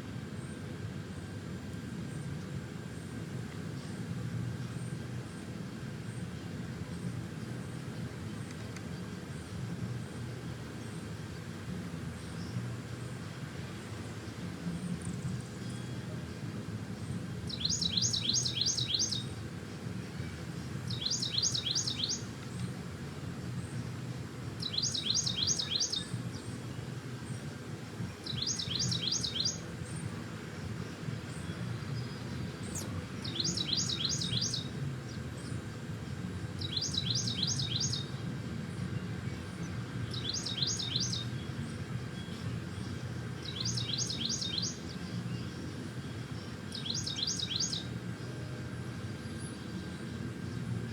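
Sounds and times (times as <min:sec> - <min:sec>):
low background hum: 0:00.0 - 0:50.9
songbird singing: 0:17.1 - 0:50.7.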